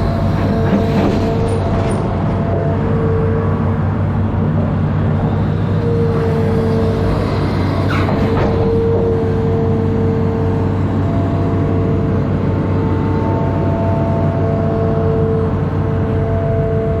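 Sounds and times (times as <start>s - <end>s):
excavator engine running: 0.0s - 17.0s.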